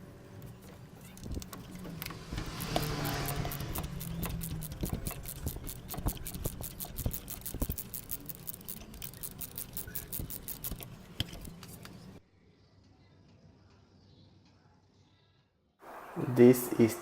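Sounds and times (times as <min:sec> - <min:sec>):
socket ratchet clicking: 0:01.2 - 0:11.6.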